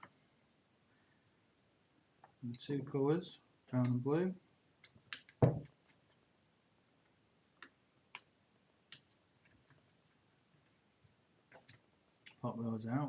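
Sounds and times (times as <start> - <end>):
light clicks of small parts: 3.8 - 4.0
knock: 5.4 - 5.7.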